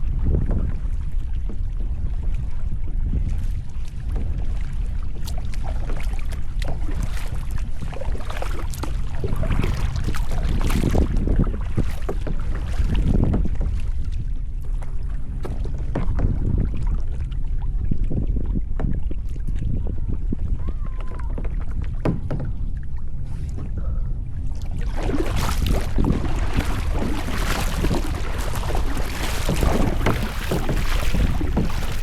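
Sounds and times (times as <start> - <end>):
wind rumble on microphone: 0.0 - 32.0
paddle strokes splashing: 3.1 - 17.3, 24.6 - 32.0
water dripping: 25.3 - 32.0.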